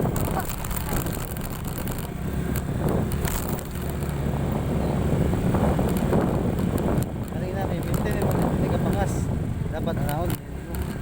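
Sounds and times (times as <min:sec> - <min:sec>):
knocks and rattles: 0:00.0 - 0:04.2, 0:05.7 - 0:09.1
scooter engine running: 0:00.0 - 0:11.0
wind on microphone: 0:00.0 - 0:11.0.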